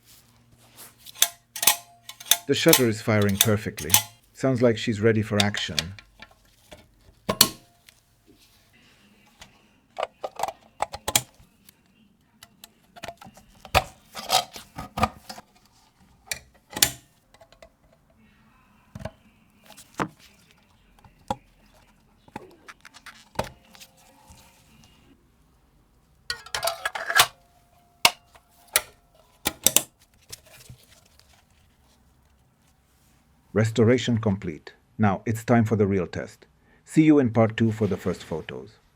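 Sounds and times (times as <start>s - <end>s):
small metallic clinks: 1.2s - 4.2s.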